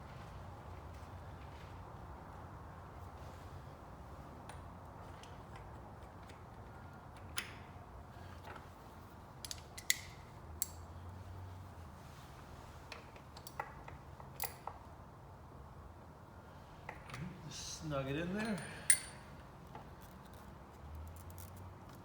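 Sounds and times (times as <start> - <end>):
metal tools clicking and tapping: 18.3 - 19.3.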